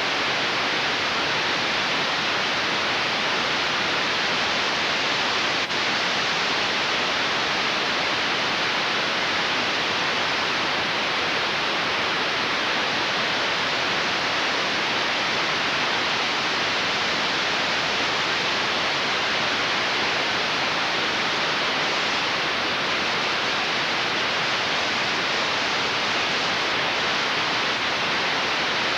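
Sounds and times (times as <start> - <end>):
static-like hiss: 0.0 - 28.9.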